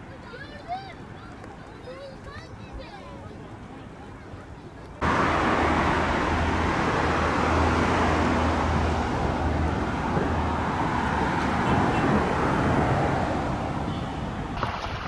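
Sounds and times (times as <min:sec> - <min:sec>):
loud rushing noise: 0:05.0 - 0:13.8.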